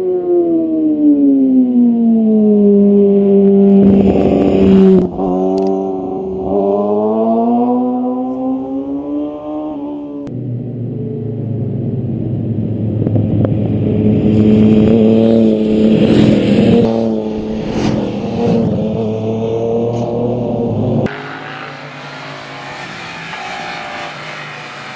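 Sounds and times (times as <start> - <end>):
motorcycle engines revving: 21.1 - 24.9.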